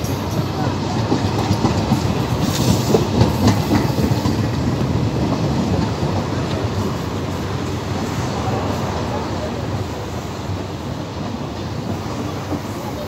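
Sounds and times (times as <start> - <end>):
wheels clacking over rail joints: 0.0 - 9.6
train wheels rumbling on rails: 0.0 - 13.0.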